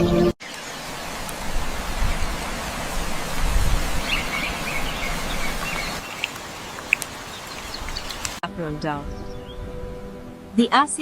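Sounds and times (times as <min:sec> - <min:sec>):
bird chirps: 0:04.0 - 0:08.4.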